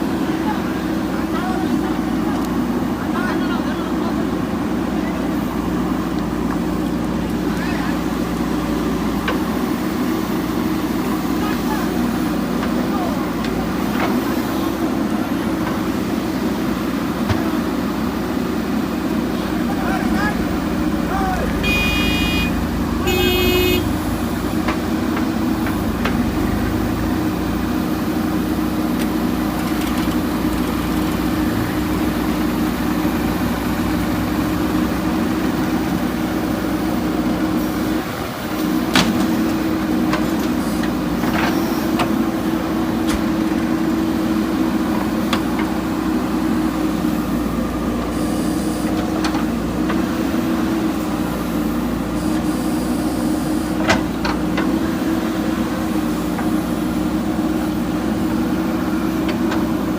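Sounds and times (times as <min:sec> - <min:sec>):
diesel engine running: 0:00.0 - 0:59.9
horn toot: 0:21.6 - 0:24.0.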